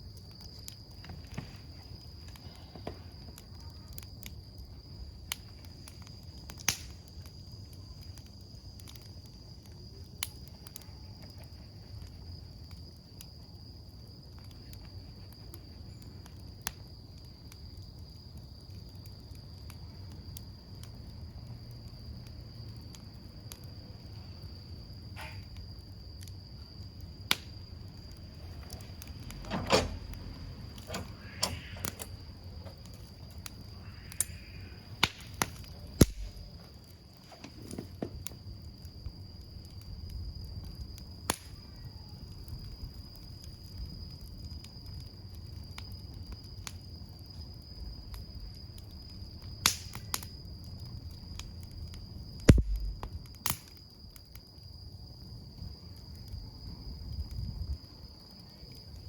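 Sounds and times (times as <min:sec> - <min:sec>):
campfire crackling: 0:00.0 - 0:59.0
high insect trill: 0:00.0 - 0:59.0
sharp pops and snaps: 0:05.3 - 0:07.4, 0:27.2 - 0:36.6, 0:41.2 - 0:41.6, 0:49.6 - 0:50.3, 0:51.4 - 0:53.9
low thud: 0:52.5 - 0:53.2.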